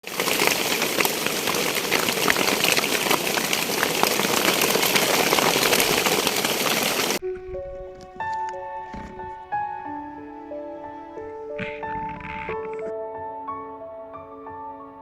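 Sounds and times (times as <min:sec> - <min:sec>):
heavy rain pouring: 0:00.0 - 0:10.1.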